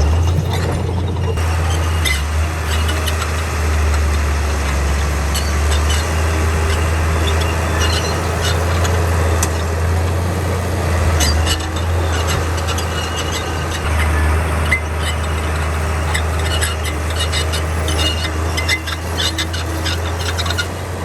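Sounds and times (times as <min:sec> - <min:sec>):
metal clanks and ticks: 0:00.0 - 0:10.2
diesel engine droning: 0:00.0 - 0:21.0.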